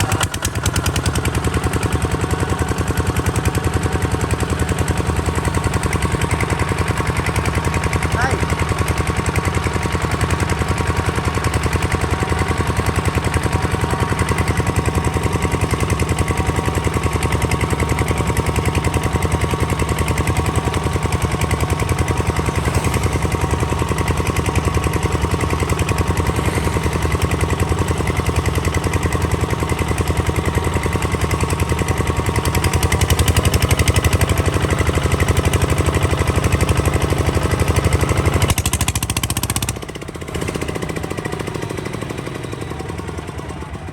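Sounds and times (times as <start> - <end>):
diesel engine chugging: 0.0 - 43.9.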